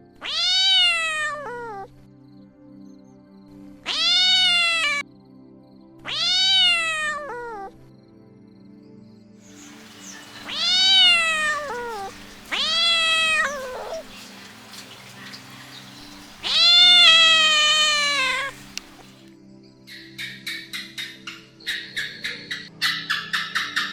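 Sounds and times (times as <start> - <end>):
soft background music: 0.1 - 23.9
kitten meowing: 0.2 - 1.9, 3.9 - 5.0, 6.1 - 7.7, 10.0 - 14.4, 15.2 - 19.2.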